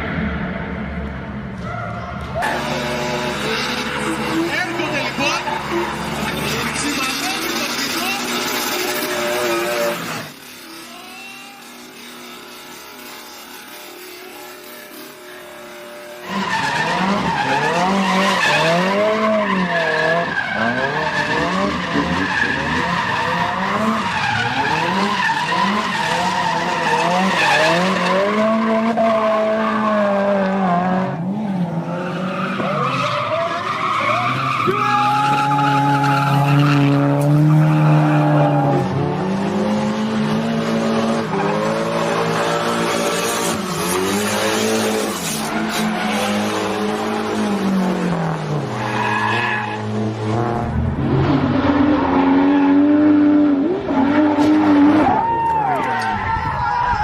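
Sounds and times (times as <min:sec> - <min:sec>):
car engine revving: 0:00.0 - 0:55.3
tyres squealing: 0:02.4 - 0:28.8, 0:32.0 - 0:38.8.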